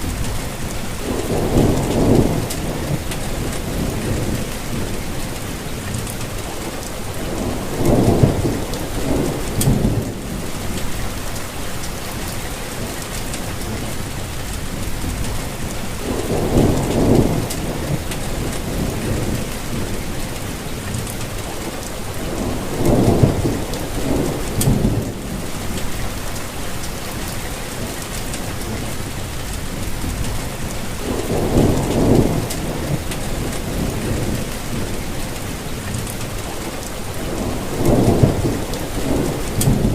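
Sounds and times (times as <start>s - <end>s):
low rumble of thunder: 0.0s - 39.9s
steady rain falling: 0.0s - 39.9s.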